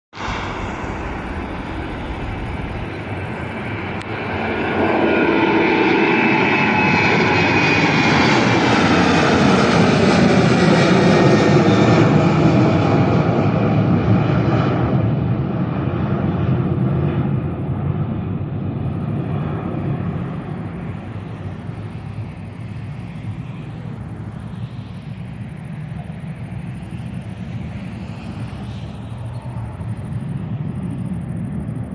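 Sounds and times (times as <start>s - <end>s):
jet engines at takeoff: 0.1s - 31.9s
whining jet engine tones: 0.1s - 31.9s.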